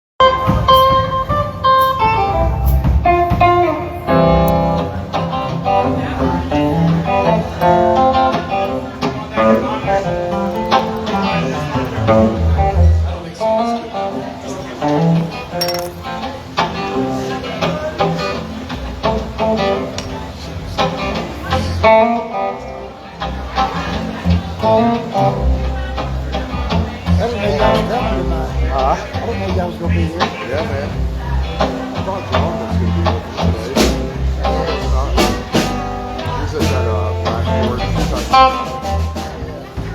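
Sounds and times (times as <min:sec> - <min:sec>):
guitar notes and chords: 0:00.2 - 0:39.9
low sustained bass notes: 0:23.3 - 0:39.9.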